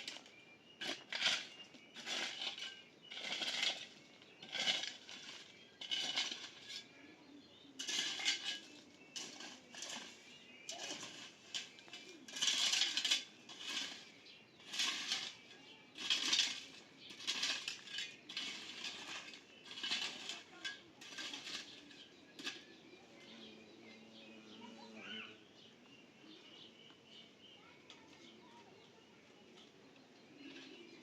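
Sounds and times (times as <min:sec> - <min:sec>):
metallic scrapes and clinks: 0:00.0 - 0:22.8.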